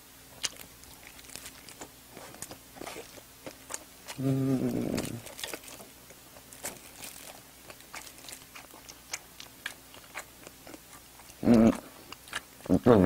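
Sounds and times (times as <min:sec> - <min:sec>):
person chewing food: 0:00.0 - 0:12.8
voice humming: 0:04.1 - 0:05.2.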